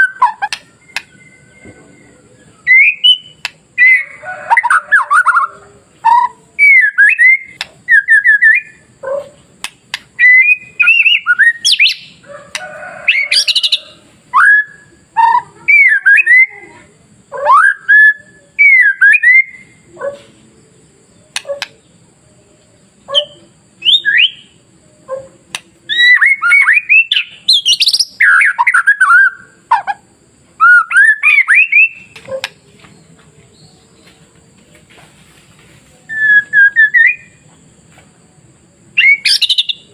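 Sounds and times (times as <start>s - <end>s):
bird singing whistled phrases: 0.0s - 5.5s, 6.1s - 8.8s, 10.2s - 12.2s, 13.1s - 16.7s, 17.4s - 19.8s, 23.1s - 24.6s, 25.9s - 29.9s, 30.6s - 32.5s, 36.1s - 37.4s, 39.0s - 39.9s.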